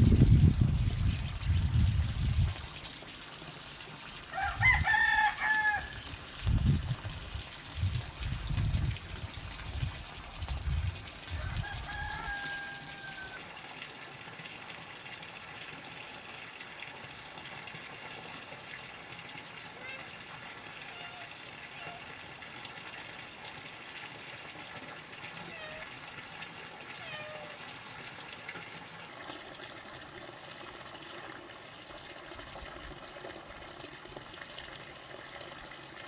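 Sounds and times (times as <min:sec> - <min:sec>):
rooster crowing: 0:04.3 - 0:06.1, 0:11.3 - 0:13.4.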